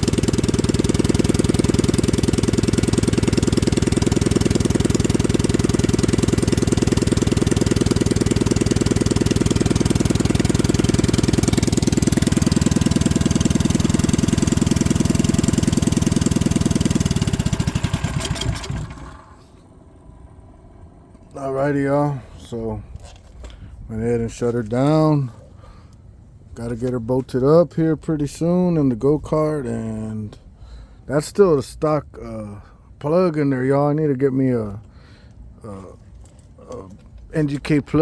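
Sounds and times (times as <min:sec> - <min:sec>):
single-cylinder engine idling: 0:00.0 - 0:23.0
engine shutting off: 0:00.0 - 0:23.7.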